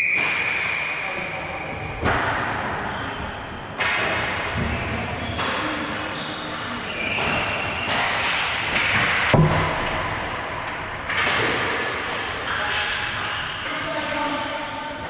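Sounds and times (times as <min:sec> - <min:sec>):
echoing hall noise: 0:00.0 - 0:15.0
sharp knock: 0:07.2 - 0:10.3.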